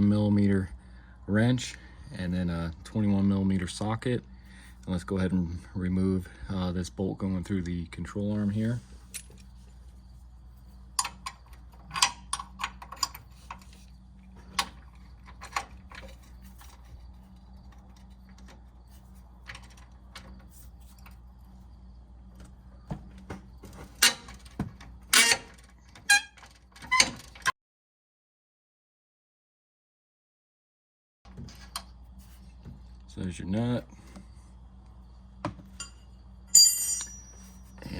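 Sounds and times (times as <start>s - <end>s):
low steady hum: 0.0s - 25.8s, 31.3s - 37.9s
wrench clicking and clinking: 36.6s - 37.4s.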